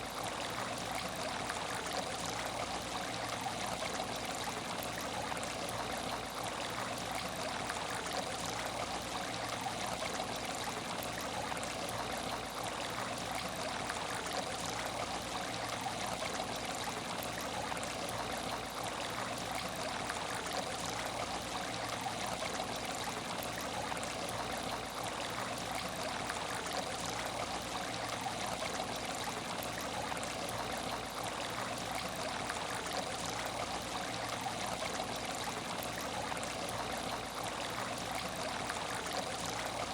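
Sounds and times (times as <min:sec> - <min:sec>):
aquarium water trickling: 0:00.0 - 0:39.9.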